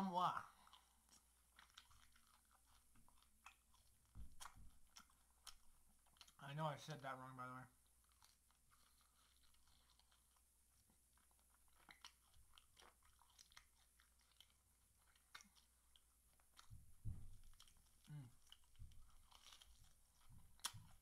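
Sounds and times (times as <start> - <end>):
chewing and crunching: 0.0 - 21.0
low thump: 17.0 - 17.5.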